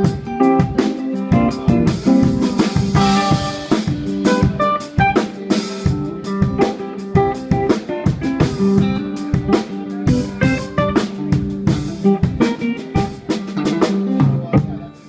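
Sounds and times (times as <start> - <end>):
drum kit beat: 0.0 - 15.0
electric guitar notes: 0.0 - 15.0.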